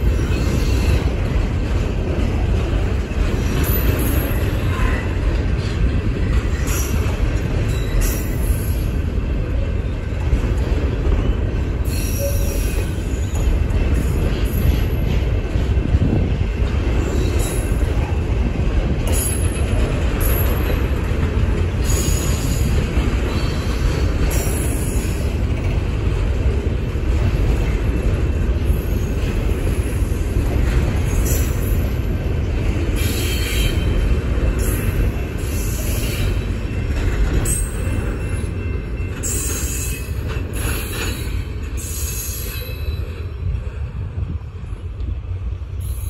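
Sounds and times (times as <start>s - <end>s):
train wheels rumbling and rattling: 0.0s - 46.0s
high-pitched wheel squeals: 11.8s - 13.5s.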